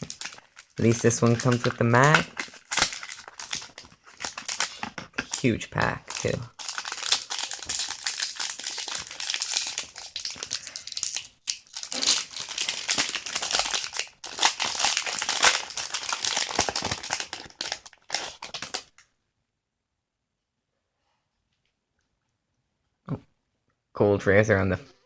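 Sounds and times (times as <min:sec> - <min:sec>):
foil wrapper crinkling: 0:00.0 - 0:19.0.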